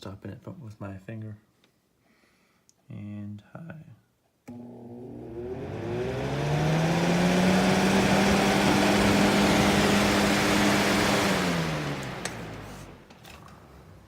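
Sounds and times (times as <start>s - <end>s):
fan motor humming: 4.5s - 13.2s
rush of air from fan blades: 5.4s - 13.0s.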